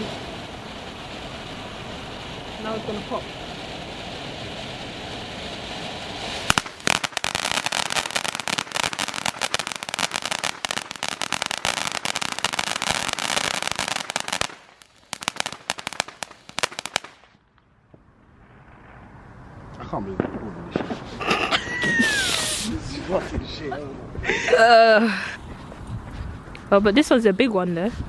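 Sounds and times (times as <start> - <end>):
firework crackling: 0.0 - 23.2.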